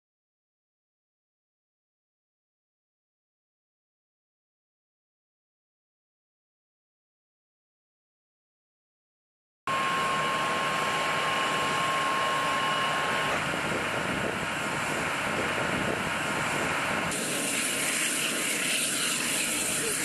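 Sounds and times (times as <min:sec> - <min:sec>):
thin high whine: 0:09.7 - 0:20.0.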